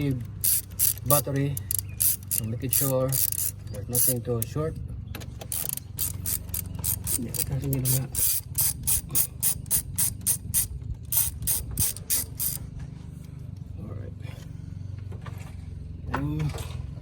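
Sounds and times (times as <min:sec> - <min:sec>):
ratchet handle clicking: 0:00.0 - 0:04.6, 0:05.4 - 0:12.7.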